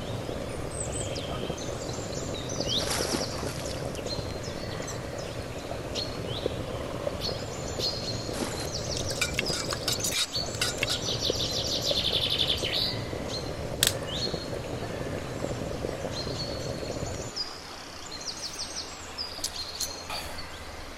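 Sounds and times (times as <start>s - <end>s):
small birds chirping: 0.0s - 20.8s
steady background noise: 0.0s - 20.9s
sharp clicks: 13.8s - 14.1s.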